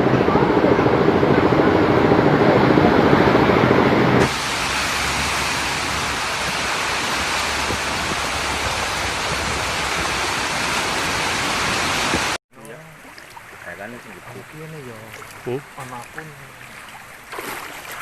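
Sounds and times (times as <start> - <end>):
floodwater rushing: 4.2 - 18.0.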